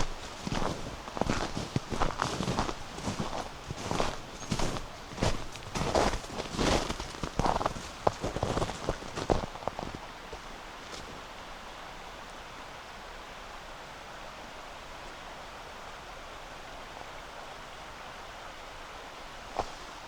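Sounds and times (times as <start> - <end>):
footsteps on snow: 0.0 - 11.2, 19.6 - 20.0
river flowing: 0.0 - 20.0.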